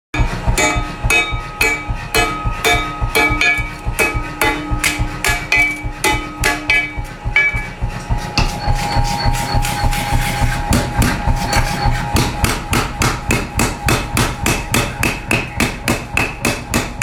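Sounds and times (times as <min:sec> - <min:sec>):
music with bell-like notes: 0:00.2 - 0:09.6.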